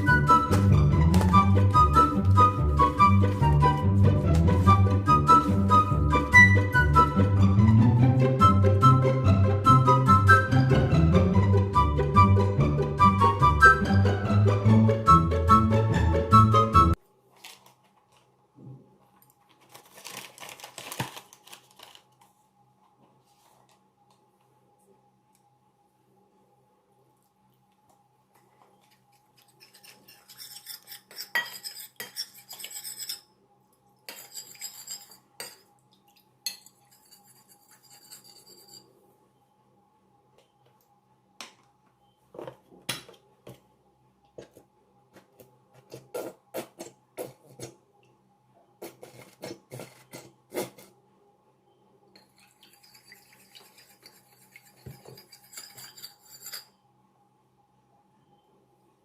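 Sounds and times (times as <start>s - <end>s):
utensils and dishes clinking: 29.4s - 33.2s, 34.0s - 35.8s, 52.2s - 56.8s.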